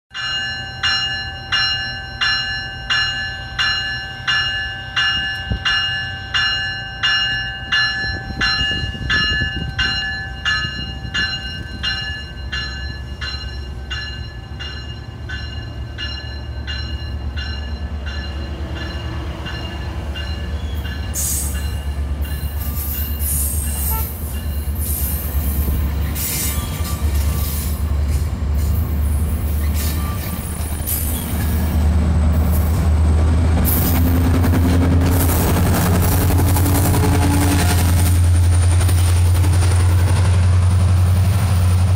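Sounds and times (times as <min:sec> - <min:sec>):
bell ringing: 0:00.1 - 0:24.8
train low rumble: 0:00.1 - 0:41.9
wheels squealing and rattling on rails: 0:00.2 - 0:41.9.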